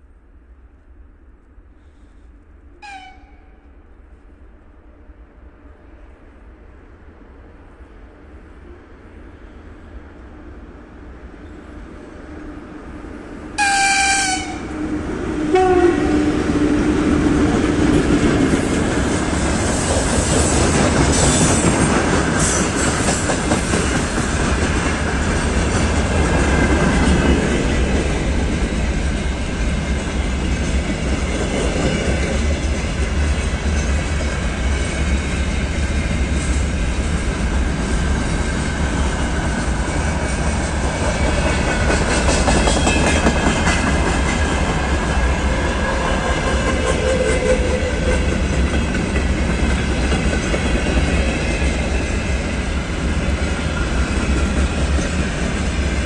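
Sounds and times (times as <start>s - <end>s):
freight train rumbling past: 0.0s - 56.0s
locomotive horn: 2.8s - 3.6s, 13.6s - 16.3s.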